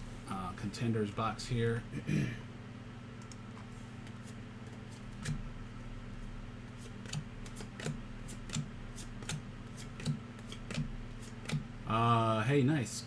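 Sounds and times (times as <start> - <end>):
cards clicking and snapping: 7.0 - 11.6.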